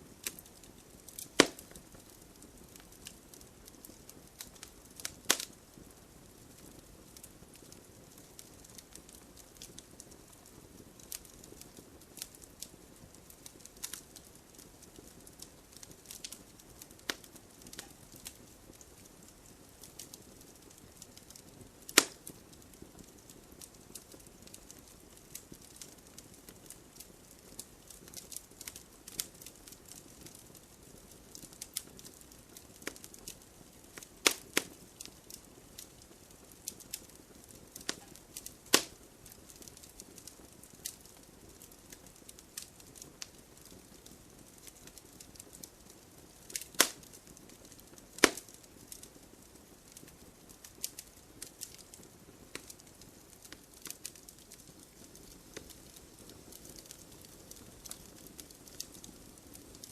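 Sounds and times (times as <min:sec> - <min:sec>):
wood fire crackling: 0:00.0 - 0:59.9
sharp pops from logs: 0:01.2 - 0:01.7, 0:22.0 - 0:22.2, 0:34.2 - 0:34.7, 0:38.7 - 0:38.9, 0:46.6 - 0:47.0, 0:48.2 - 0:48.4.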